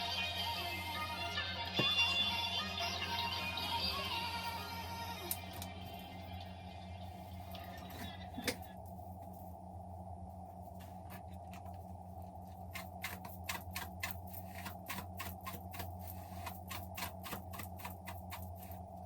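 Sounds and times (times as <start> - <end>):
steady low hum: 0.0 - 19.0
rapid sharp clicks: 12.7 - 18.7.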